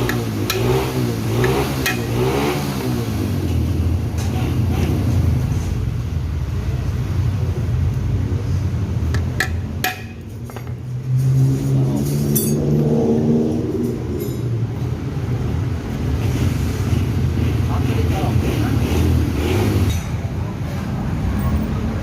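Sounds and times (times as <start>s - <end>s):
engine note rising: 11.0s - 14.2s
metallic tool clinks: 12.3s - 12.7s.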